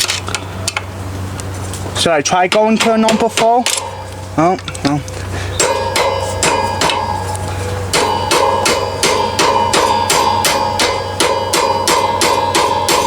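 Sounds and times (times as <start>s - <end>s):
hammer striking screwdriver metal: 5.6s - 7.2s, 8.0s - 13.0s.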